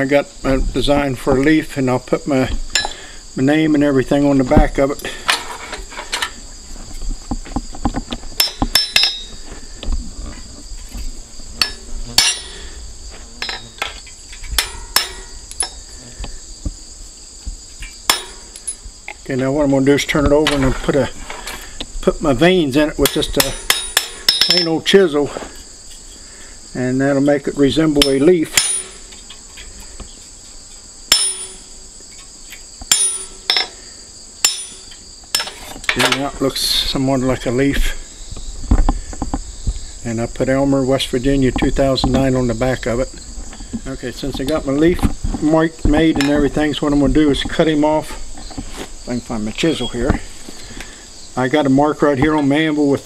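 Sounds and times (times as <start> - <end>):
crickets chirring: 0.0 - 53.0
high insect drone: 0.0 - 53.0
hammer striking steel stamps: 11.6 - 12.6, 14.6 - 15.7, 18.1 - 18.8, 23.1 - 24.7, 31.1 - 31.7, 32.9 - 33.7, 34.4 - 35.6.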